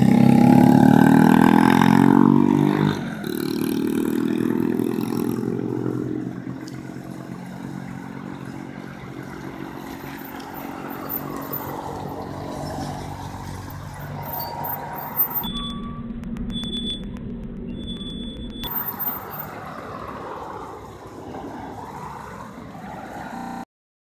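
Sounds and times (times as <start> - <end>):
vehicle engine passing: 0.0 - 15.6, 16.2 - 23.7
steady traffic hum: 0.0 - 23.7.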